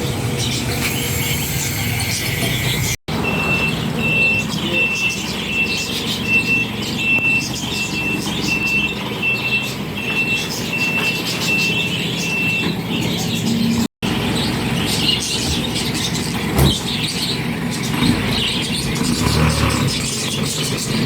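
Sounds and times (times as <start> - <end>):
truck engine running: 0.0 - 21.0
reversing alarm beeps: 3.1 - 13.3.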